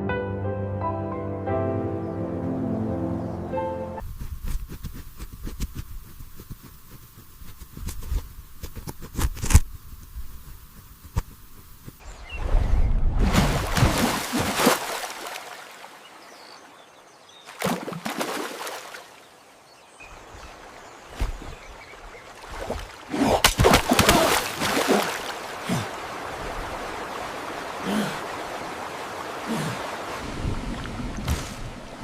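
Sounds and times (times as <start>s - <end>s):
water splashing and sloshing: 11.2s - 32.0s
running water: 13.2s - 32.0s.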